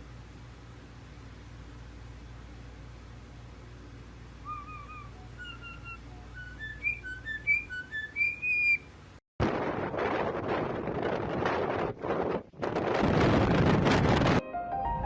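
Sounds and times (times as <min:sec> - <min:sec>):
bird whistling a tune: 0:04.4 - 0:08.9
wind noise on microphone: 0:09.4 - 0:14.4.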